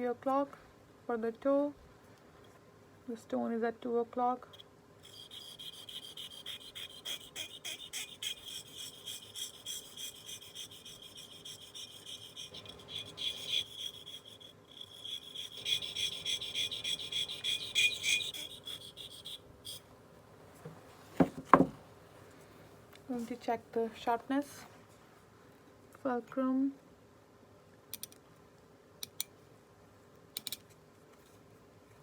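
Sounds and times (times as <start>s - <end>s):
blade rasping on sharpening stone: 4.5s - 19.8s.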